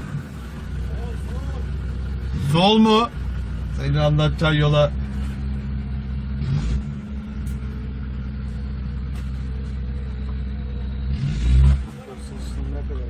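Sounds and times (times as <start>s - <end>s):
engine running at low revs: 0.0s - 13.0s.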